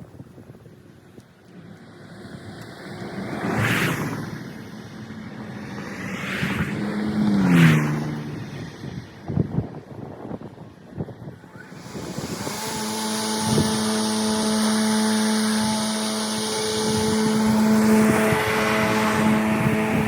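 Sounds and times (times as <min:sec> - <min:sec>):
electric lawn tool humming: 0:11.4 - 0:20.0
loud hiss: 0:11.4 - 0:20.0.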